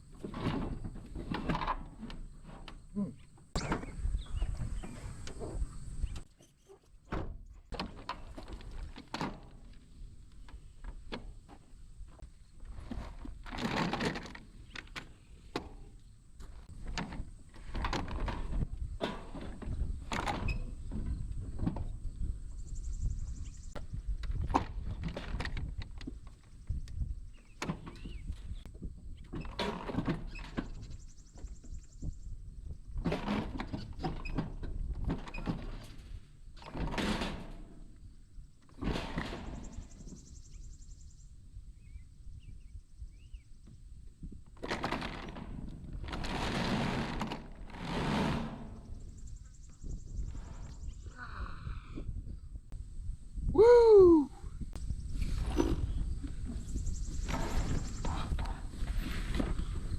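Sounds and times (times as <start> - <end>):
knocks and clunks of tools: 0.2 - 2.8.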